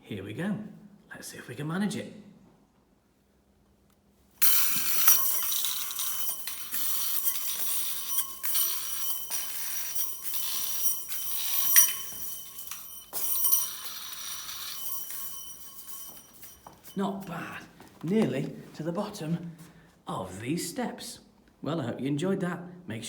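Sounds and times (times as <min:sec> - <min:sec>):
metal spring coils jangling: 0:04.4 - 0:17.8
metal spring clinking on steps: 0:04.4 - 0:18.4.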